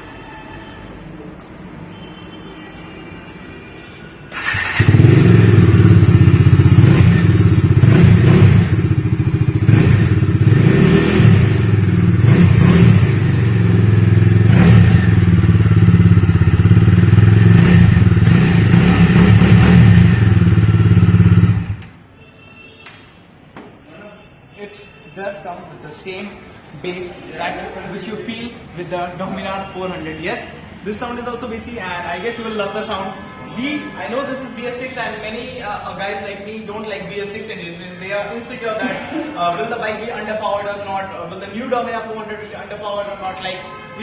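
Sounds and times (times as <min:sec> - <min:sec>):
motorcycle engine running: 0:04.4 - 0:21.8.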